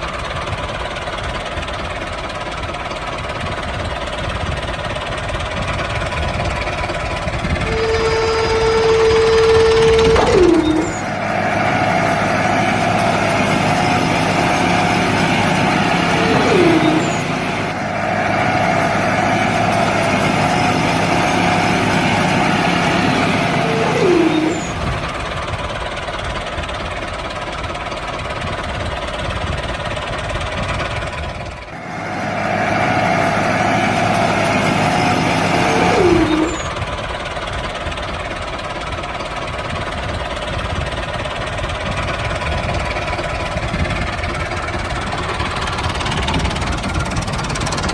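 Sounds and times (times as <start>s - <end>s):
small motor running: 7.4s - 11.1s, 11.9s - 17.8s, 19.3s - 25.2s, 33.9s - 36.9s
mid-pitched whine: 7.5s - 25.1s
brief falling squeal: 7.6s - 11.2s, 15.7s - 17.6s, 22.8s - 25.0s, 35.0s - 36.8s.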